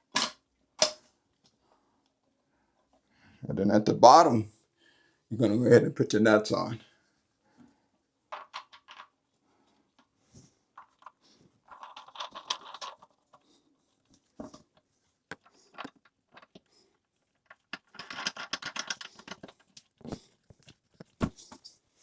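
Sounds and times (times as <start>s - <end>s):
plastic nuts and bolts rattling: 8.3s - 9.1s, 10.8s - 13.5s, 14.4s - 21.7s.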